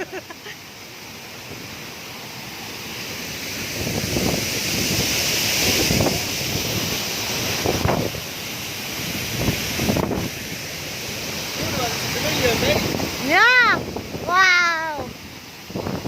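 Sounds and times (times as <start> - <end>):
waterfall rushing: 0.0 - 16.0
wind buffeting microphone: 3.7 - 8.3, 9.0 - 10.5, 11.5 - 16.0.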